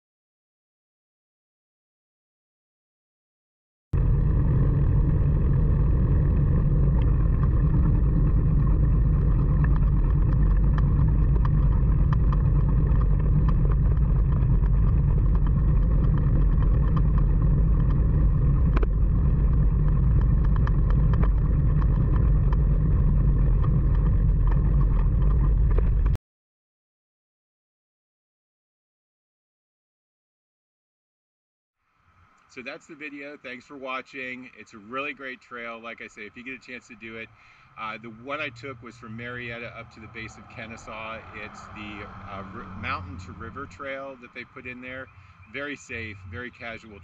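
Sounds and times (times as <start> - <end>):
wind buffeting microphone: 4.0 - 26.2, 37.9 - 46.8.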